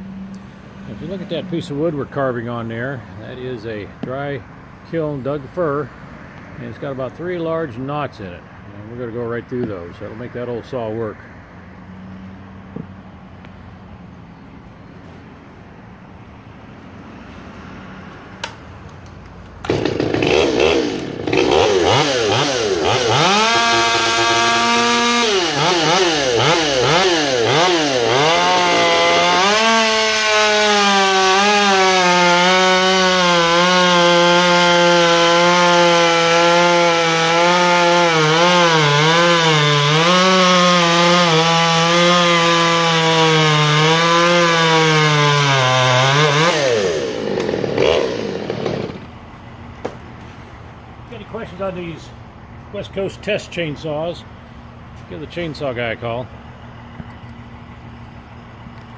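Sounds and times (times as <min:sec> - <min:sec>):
chainsaw revving and cutting wood: 0:19.6 - 0:49.2.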